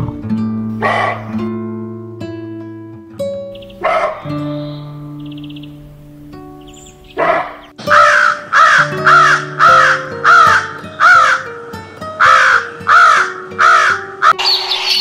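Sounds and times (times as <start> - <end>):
background music sustained notes: 0.0 - 15.0
crow cawing: 7.2 - 15.0.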